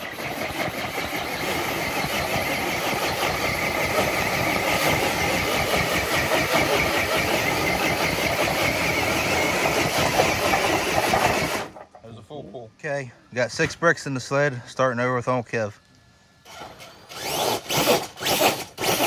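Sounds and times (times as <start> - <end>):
electric motor whining: 0.0 - 11.8, 16.5 - 19.0.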